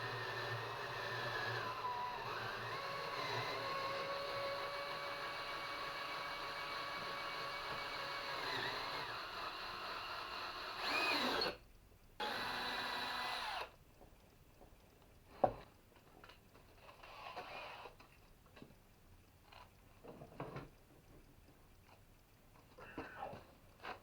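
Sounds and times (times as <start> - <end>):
power tool motor whining: 0.0 - 11.6, 12.2 - 13.7.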